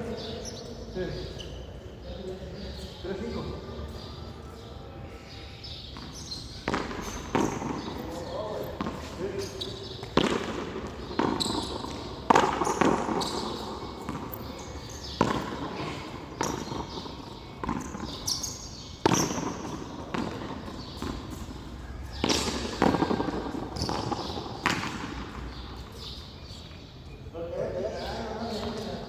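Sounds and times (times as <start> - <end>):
ball rebounding off wall: 10.0 - 14.3.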